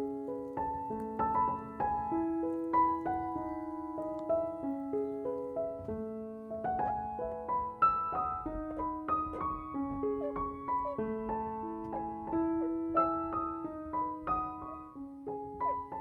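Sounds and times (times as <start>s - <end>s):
slow solo piano melody: 0.0s - 16.0s.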